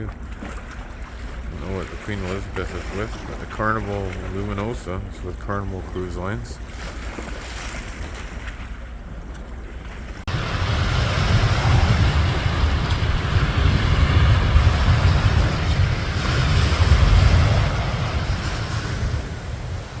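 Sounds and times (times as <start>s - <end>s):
sea waves washing: 0.0s - 20.0s
wind buffeting microphone: 0.0s - 20.0s.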